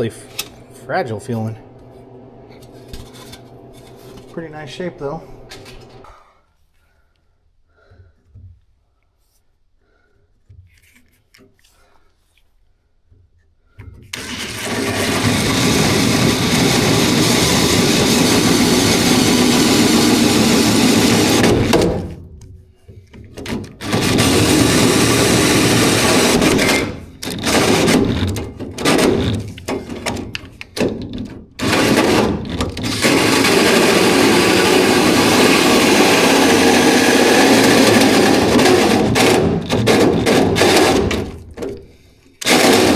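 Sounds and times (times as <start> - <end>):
power tool cutting: 0.0 - 6.0, 14.2 - 22.2, 23.7 - 29.9, 31.6 - 41.6, 42.4 - 42.9.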